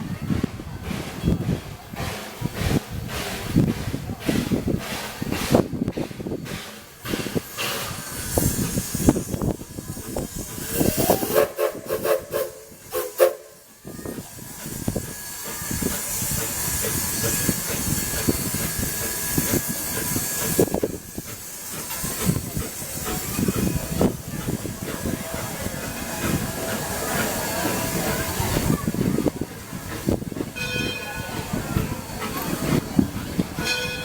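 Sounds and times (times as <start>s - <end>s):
steam locomotive exhaust chuffing: 0.0s - 34.0s
hiss of escaping steam: 0.1s - 34.0s
steam whistle blowing: 10.7s - 20.9s.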